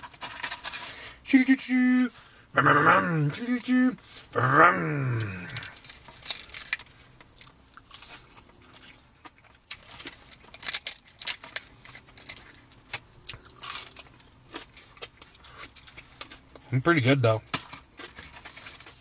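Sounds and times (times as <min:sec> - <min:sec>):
chewing crispy food: 0:00.0 - 0:19.0
wet mouth sounds: 0:04.3 - 0:05.8.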